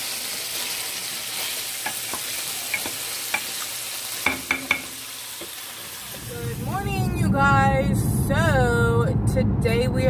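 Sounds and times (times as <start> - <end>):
food sizzling in a frying pan: 0.0 - 6.9.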